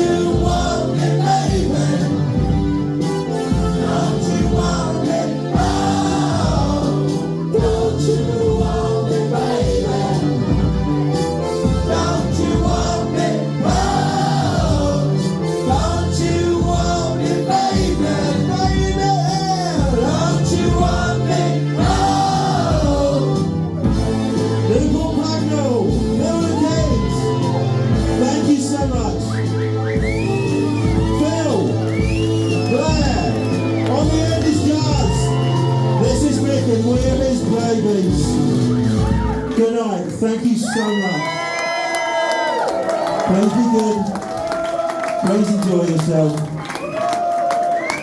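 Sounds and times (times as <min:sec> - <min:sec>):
choir singing held chords: 0:00.0 - 0:24.7
backing music with bass beat: 0:00.0 - 0:39.5.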